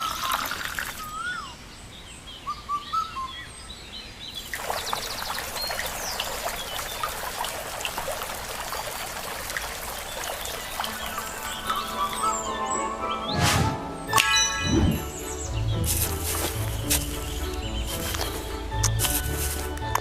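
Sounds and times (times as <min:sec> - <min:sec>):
trickling pouring hiss: 0:00.0 - 0:01.3, 0:04.4 - 0:12.4, 0:15.8 - 0:20.0
birds chirping: 0:00.0 - 0:20.0.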